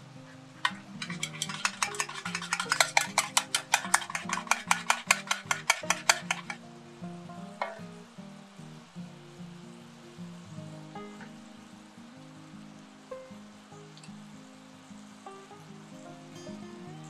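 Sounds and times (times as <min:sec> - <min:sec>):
eggs being beaten in a bowl: 0:00.6 - 0:06.6.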